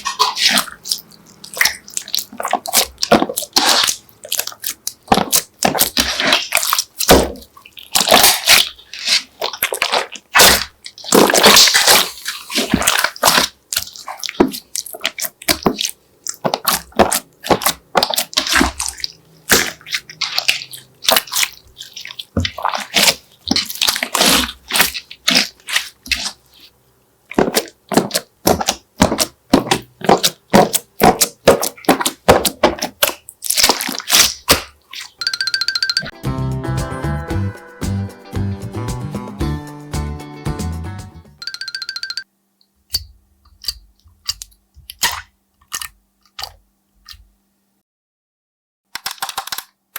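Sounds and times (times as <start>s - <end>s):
slime squelching and crackling: 0.0s - 35.3s, 43.5s - 47.2s.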